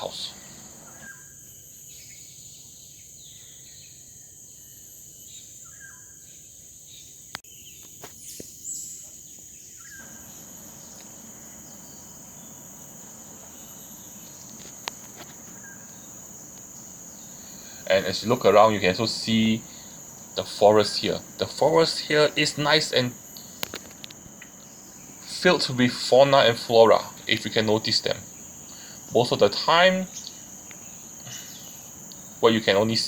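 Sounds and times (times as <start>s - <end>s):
forest insects chorus: 0.0s - 33.0s
sharp clicks: 10.0s - 17.9s, 23.4s - 24.8s.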